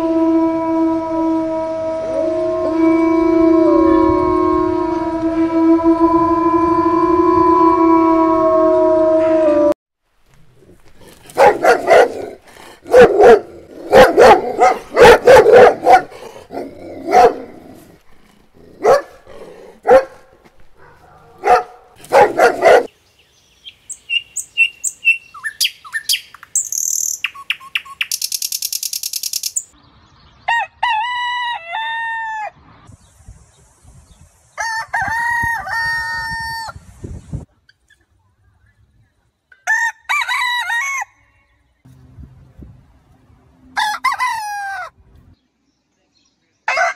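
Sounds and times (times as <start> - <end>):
dog barking: 11.3 - 17.5, 18.8 - 22.9
high bird calls: 22.3 - 29.8
rooster crowing: 30.5 - 32.6, 34.6 - 36.8, 39.6 - 41.4, 43.7 - 45.0, 46.7 - 46.9.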